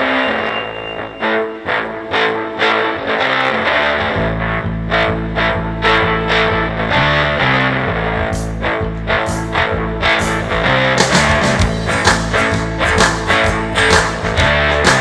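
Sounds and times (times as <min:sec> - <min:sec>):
bass line: 0:00.0 - 0:15.0
distorted electric guitar riff: 0:00.0 - 0:15.0
sharp percussion: 0:08.4 - 0:15.0.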